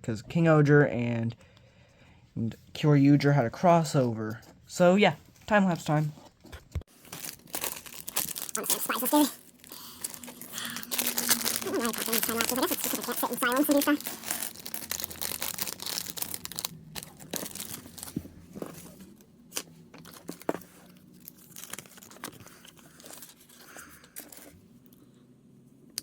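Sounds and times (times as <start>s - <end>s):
plastic packaging crinkling: 6.9s - 24.6s.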